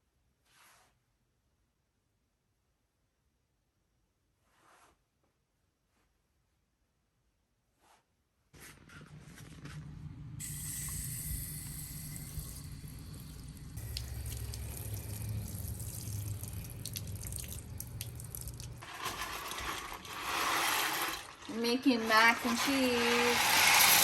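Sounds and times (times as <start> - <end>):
low hum: 9.0 - 18.8
tap running water: 10.4 - 24.0.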